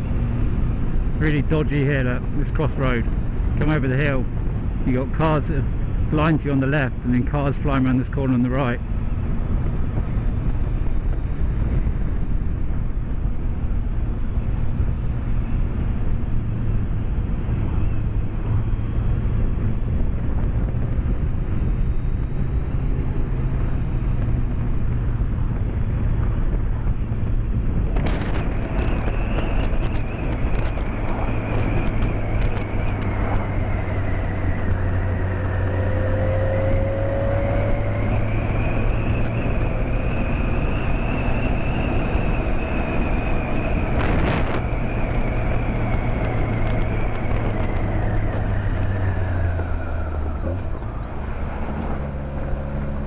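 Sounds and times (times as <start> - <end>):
motorcycle engine cruising: 0.0 - 53.0
wind and road noise: 0.0 - 53.0
whistling tone: 28.9 - 33.3, 37.8 - 46.3.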